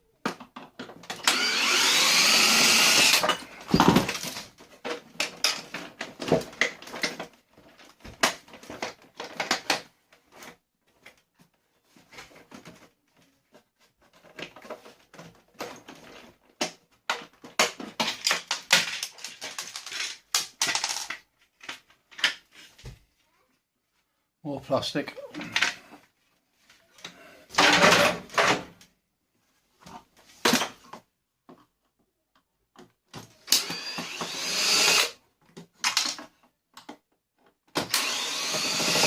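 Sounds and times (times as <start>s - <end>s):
plastic parts clicking and rattling: 2.9s - 22.8s, 35.4s - 38.2s.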